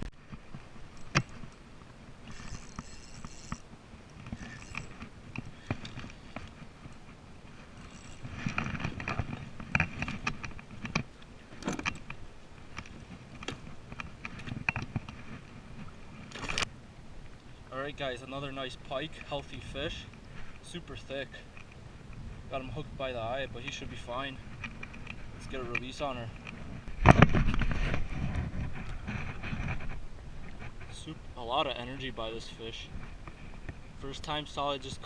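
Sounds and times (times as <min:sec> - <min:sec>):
fishing gear clicking and knocking: 0:00.0 - 0:15.4, 0:24.5 - 0:28.0.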